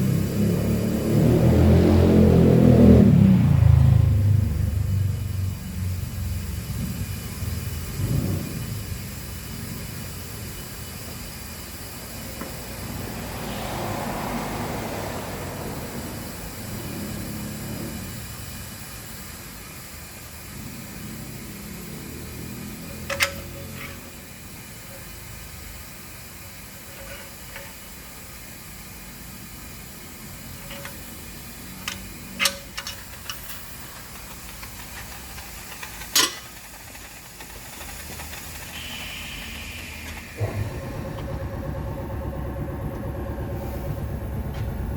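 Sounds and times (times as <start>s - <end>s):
mechanical hum: 0.0s - 44.9s
hissing rush of suction: 36.8s - 40.8s.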